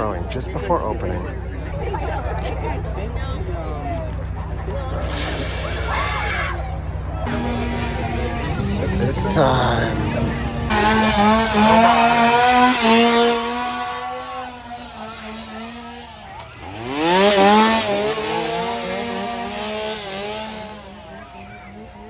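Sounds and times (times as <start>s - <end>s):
chainsaw revving: 4.9s - 6.2s, 7.2s - 21.4s.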